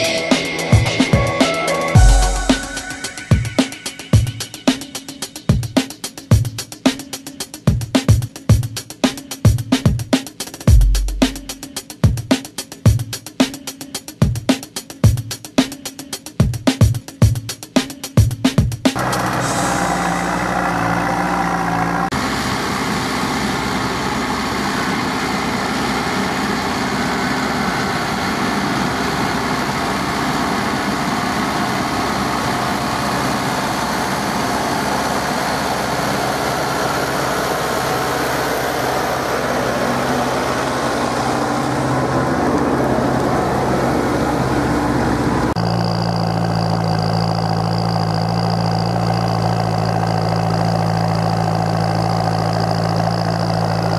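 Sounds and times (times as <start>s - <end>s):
tractor diesel engine running: 19.0s - 53.9s.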